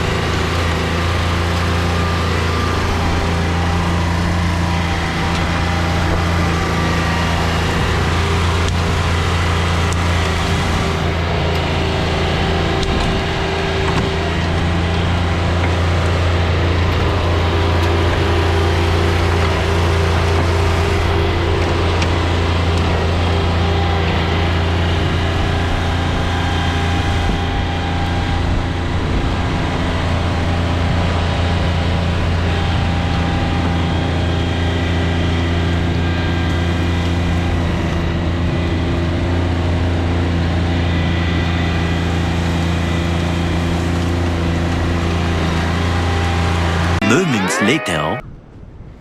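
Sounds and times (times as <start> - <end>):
tractor diesel engine running: 0.0 - 38.2.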